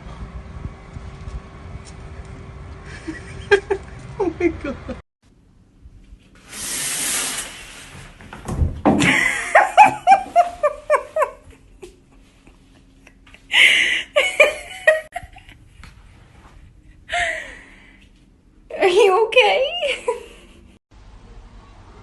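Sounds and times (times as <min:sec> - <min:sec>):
person laughing hard: 0:02.9 - 0:05.0, 0:09.0 - 0:15.5.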